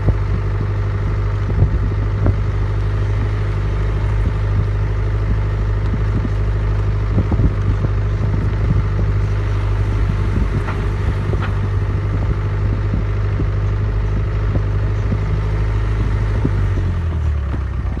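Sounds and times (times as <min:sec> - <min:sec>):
vehicle engine running: 0:00.0 - 0:18.0
light clatter: 0:10.1 - 0:12.3.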